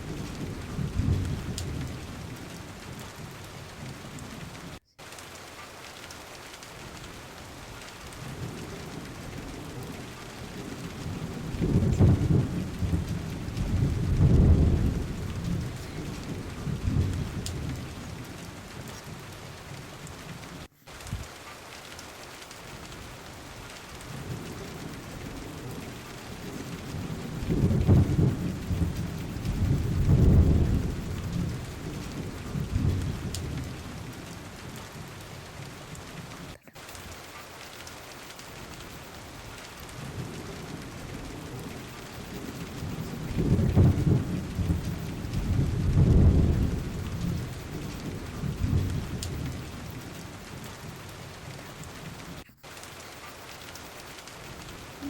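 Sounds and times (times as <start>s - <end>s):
low rolls of thunder: 0.0s - 4.8s, 6.5s - 55.0s
rain hissing: 0.0s - 55.0s.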